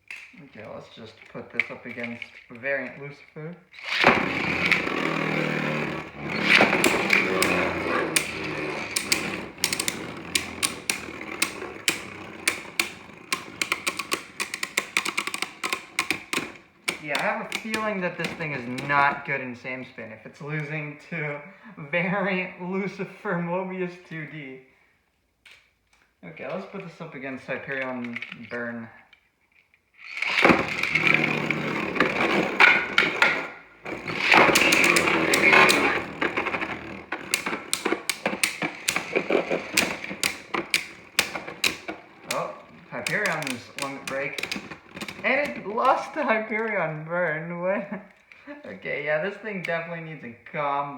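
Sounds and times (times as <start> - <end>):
spinning tops clacking together: 3.8 - 19.0, 30.0 - 45.5
spinning tops whirring: 3.8 - 19.2, 30.0 - 46.2.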